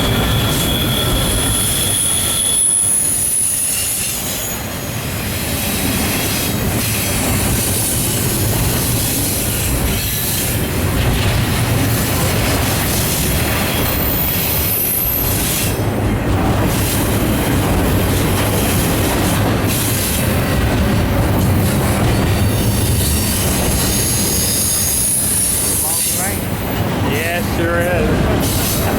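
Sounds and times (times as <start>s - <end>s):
high wheel squeal: 0.0s - 5.0s, 22.6s - 26.8s
train wheels on rails: 0.0s - 28.9s.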